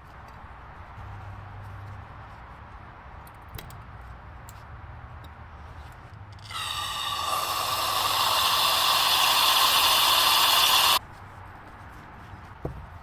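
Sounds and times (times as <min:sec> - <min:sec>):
pressurised spray hissing: 0:06.5 - 0:11.0.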